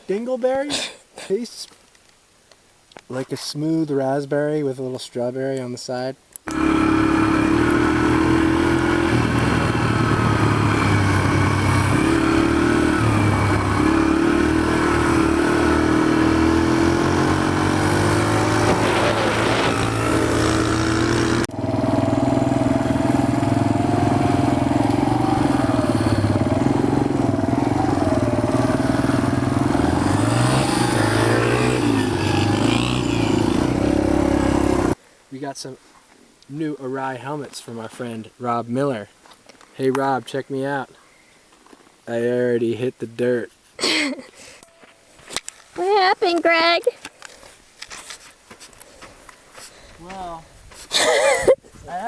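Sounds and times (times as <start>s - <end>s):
dirt bike engines revving: 6.5s - 35.0s.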